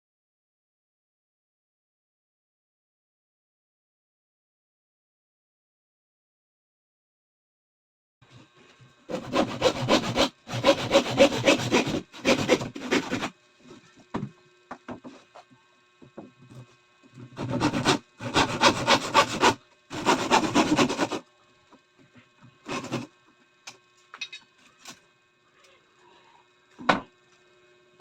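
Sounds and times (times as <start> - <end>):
hand tool rasping on wood: 9.1 - 13.3, 17.4 - 21.2, 22.7 - 23.1.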